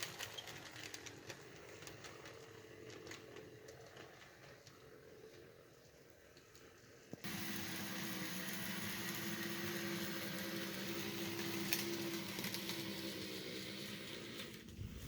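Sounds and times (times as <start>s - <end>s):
diesel locomotive engine running: 6.8s - 14.7s.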